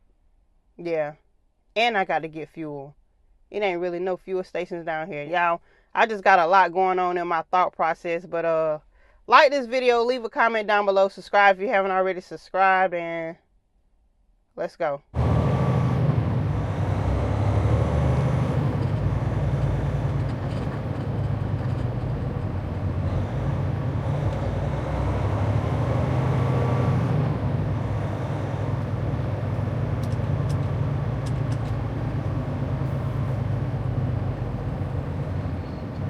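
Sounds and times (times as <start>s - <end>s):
diesel truck engine running: 15.2s - 36.0s.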